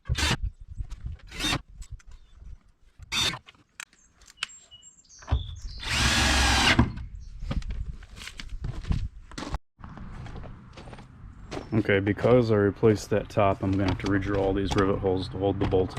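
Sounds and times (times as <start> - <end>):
power drill running: 5.8 - 7.0
handling knocks and clatters: 13.5 - 15.9.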